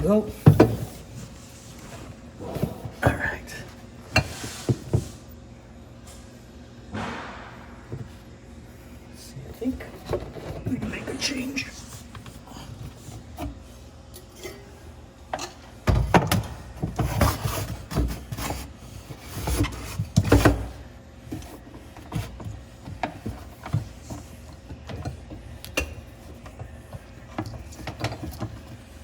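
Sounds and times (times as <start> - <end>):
knocks and scrapes of stove parts: 15.3 - 29.0.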